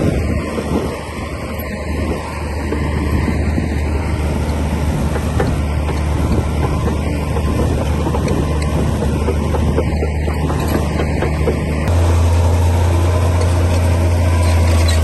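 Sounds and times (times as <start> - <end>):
bulldozer diesel engine running: 0.0 - 15.0
machine clanking: 4.4 - 15.0.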